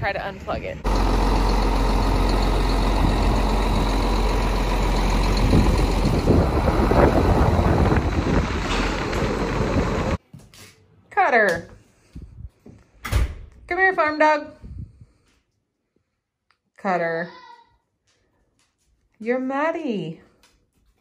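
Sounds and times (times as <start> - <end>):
tractor engine rumbling: 0.0 - 10.2.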